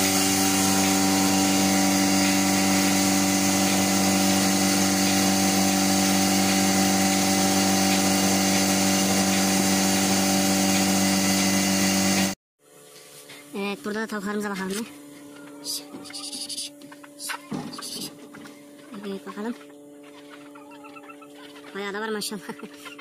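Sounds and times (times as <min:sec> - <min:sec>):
motor humming: 0:00.0 - 0:13.5.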